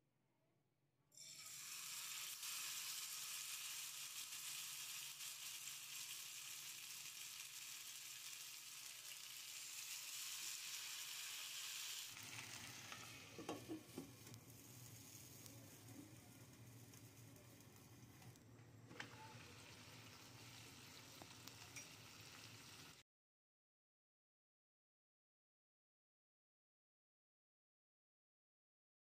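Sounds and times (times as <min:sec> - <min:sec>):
chicken frying in oil: 0:01.2 - 0:18.3, 0:19.0 - 0:23.0.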